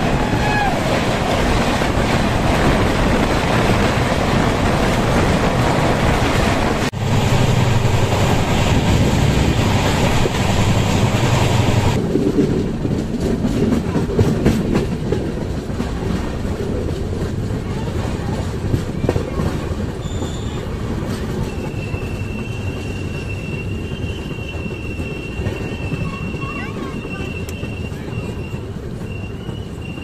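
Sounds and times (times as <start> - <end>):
wind rushing: 0.0 - 13.4
train wheels rumbling on rails: 0.0 - 30.0
wheels clicking over track: 0.0 - 30.0.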